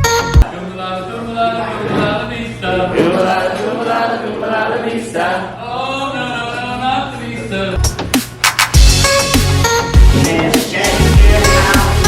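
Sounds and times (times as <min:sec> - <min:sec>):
voices chanting together: 0:01.6 - 0:06.3, 0:09.9 - 0:12.0.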